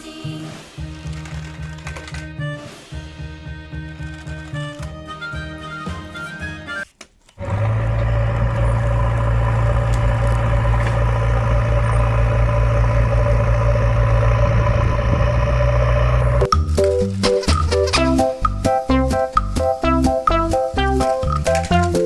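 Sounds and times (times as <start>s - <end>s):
vehicle engine idling: 7.6s - 16.5s.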